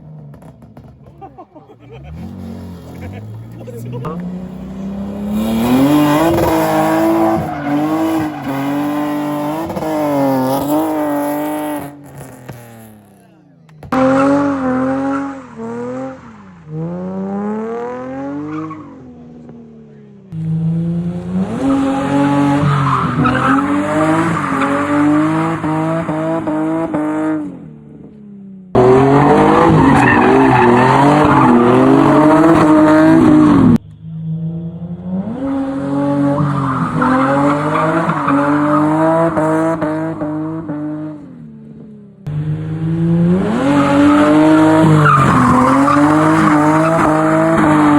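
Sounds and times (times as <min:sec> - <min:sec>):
car engine revving: 0:00.0 - 0:47.9
tyres squealing: 0:05.7 - 0:09.4.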